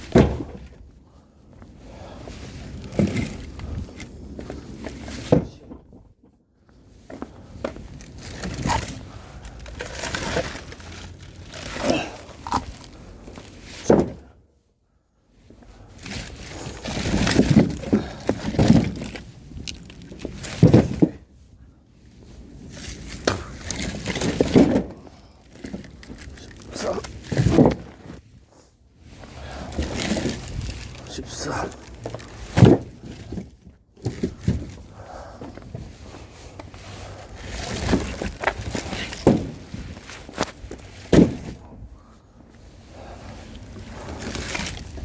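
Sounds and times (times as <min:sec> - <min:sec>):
objects thunking when set down: 0:00.0 - 0:00.8, 0:02.8 - 0:04.1, 0:04.9 - 0:06.1, 0:09.6 - 0:14.3, 0:16.6 - 0:19.2, 0:20.2 - 0:21.2, 0:23.2 - 0:28.2, 0:31.7 - 0:34.8, 0:37.6 - 0:41.7
rustling of handled objects: 0:00.0 - 0:06.1, 0:06.7 - 0:14.2, 0:15.4 - 0:45.0.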